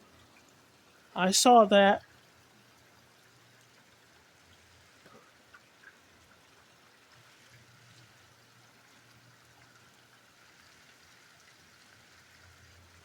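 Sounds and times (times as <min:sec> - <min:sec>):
rain hissing: 0:00.0 - 0:02.0.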